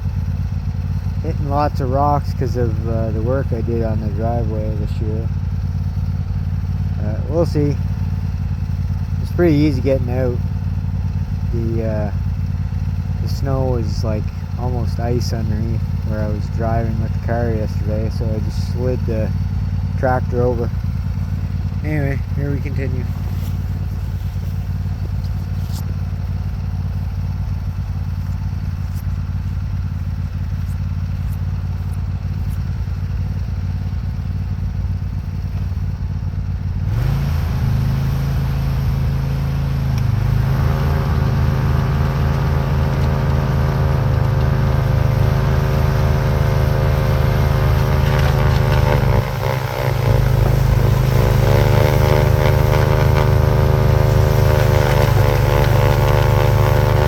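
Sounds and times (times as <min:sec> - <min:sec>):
lawn tractor engine running: 0:00.0 - 0:57.0
snowblower clearing snow: 0:00.0 - 0:57.0.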